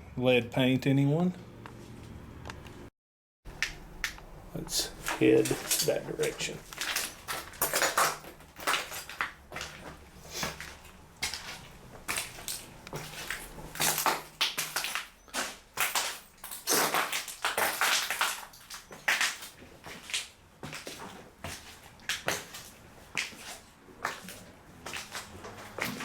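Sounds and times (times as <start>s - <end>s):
footsteps crunching through debris: 4.2s - 26.0s.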